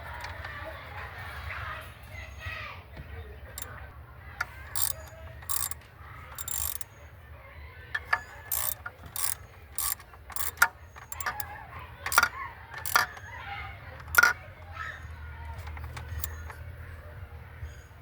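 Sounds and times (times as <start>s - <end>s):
ratchet wrench clicking: 4.4s - 7.0s, 8.0s - 13.4s, 14.0s - 14.4s, 15.6s - 16.6s.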